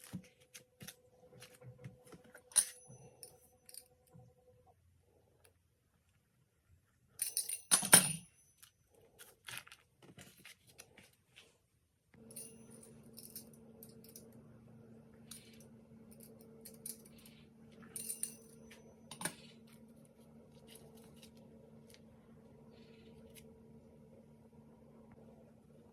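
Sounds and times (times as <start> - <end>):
steady low hum: 12.2 - 25.9.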